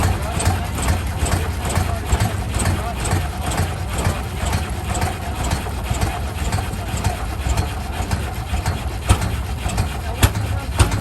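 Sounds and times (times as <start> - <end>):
tractor engine pulsing: 0.0 - 11.0.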